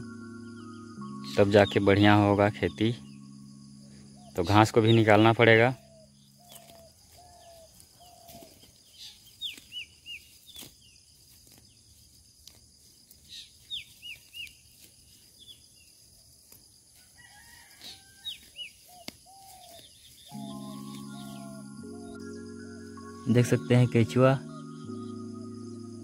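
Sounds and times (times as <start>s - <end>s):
lower curved bird calls: 0.0s - 10.8s, 17.9s - 26.0s
birds chirping: 0.0s - 11.0s, 18.4s - 26.0s.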